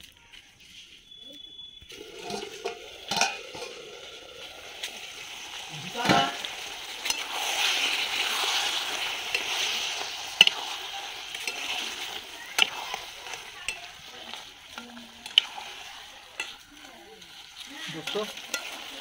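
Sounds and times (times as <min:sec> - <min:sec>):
curry sizzling in a pan: 0:01.1 - 0:19.0
metal spatula scraping a pan: 0:02.0 - 0:19.0
spatula clinking against pan: 0:11.3 - 0:15.6, 0:16.3 - 0:16.7, 0:18.0 - 0:19.0.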